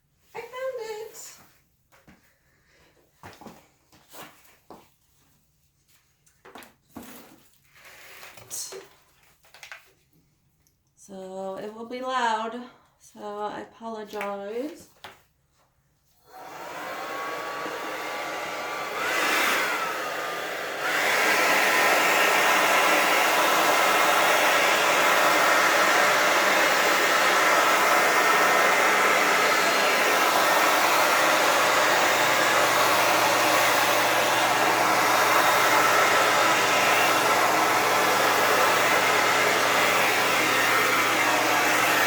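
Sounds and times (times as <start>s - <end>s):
hair dryer blowing: 16.2s - 42.0s.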